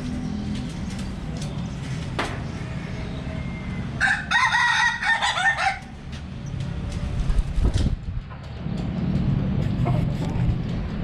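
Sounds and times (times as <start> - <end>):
rooster crowing: 4.0 - 6.0.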